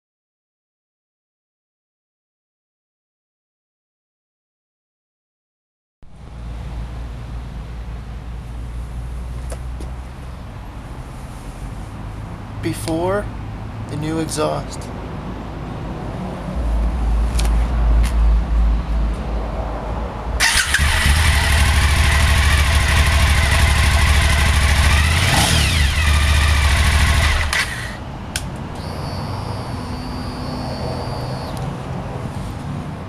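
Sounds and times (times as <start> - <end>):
motorcycle engine starting: 20.4 - 28.0
motorcycle engine idling and revving: 20.4 - 33.0.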